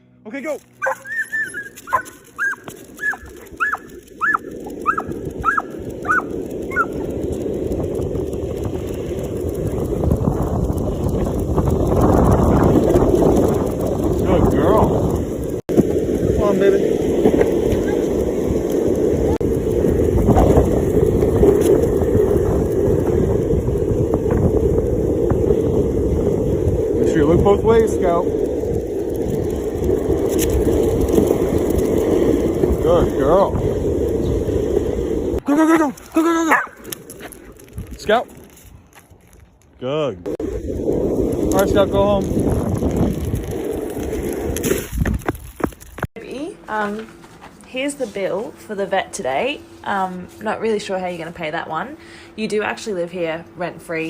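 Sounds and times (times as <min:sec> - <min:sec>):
dog yipping: 0:00.8 - 0:07.0, 0:36.5 - 0:36.8
wind buffeting microphone: 0:00.8 - 0:39.6, 0:40.2 - 0:46.1.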